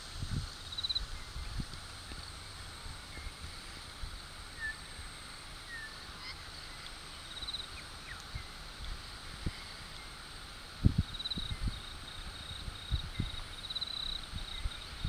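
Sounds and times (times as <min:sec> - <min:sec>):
bird chirps: 0:05.6 - 0:08.6.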